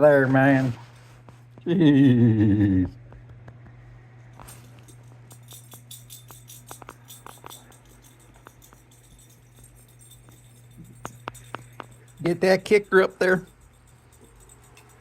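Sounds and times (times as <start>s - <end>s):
steady low hum: 0.0s - 15.0s
light jingling and ticking: 4.4s - 15.0s.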